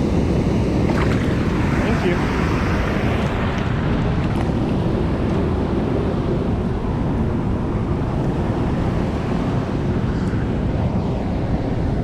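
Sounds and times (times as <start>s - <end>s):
water rushing over dam: 0.0s - 5.0s
wind buffeting microphone: 0.0s - 12.0s.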